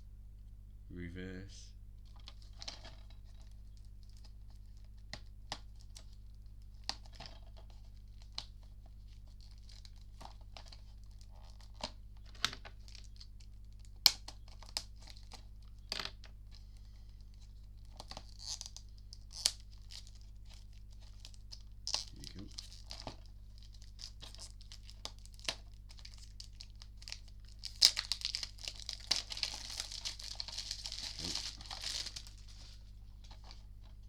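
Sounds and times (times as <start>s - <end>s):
steady low hum: 0.0s - 2.1s
plastic wrapping crinkling and tearing: 6.8s - 15.8s, 17.4s - 33.9s.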